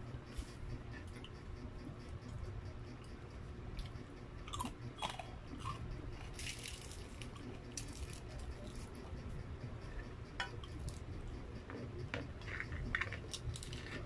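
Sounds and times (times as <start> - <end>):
chewing crispy fried chicken: 3.8 - 9.1.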